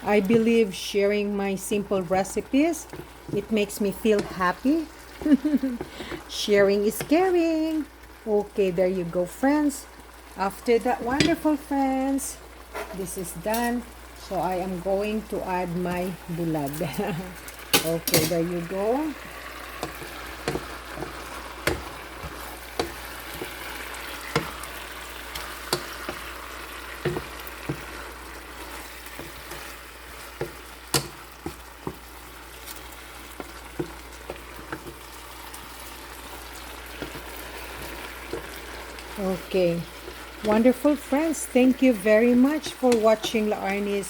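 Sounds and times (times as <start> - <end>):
food sizzling in a frying pan: 0.0 - 44.0
spatula knocking against a pan: 19.8 - 23.6.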